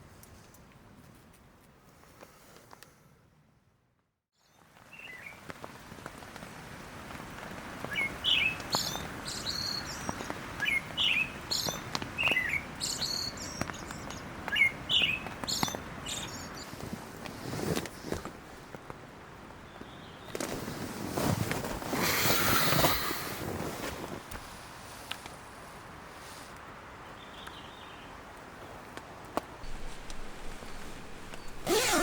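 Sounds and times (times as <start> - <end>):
outdoor background hiss: 0.0 - 32.0
birds chirping: 29.6 - 32.0.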